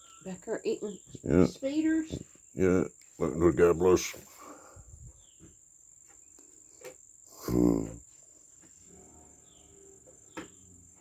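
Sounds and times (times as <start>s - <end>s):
insects droning: 0.0s - 11.0s
person murmuring: 7.4s - 8.0s.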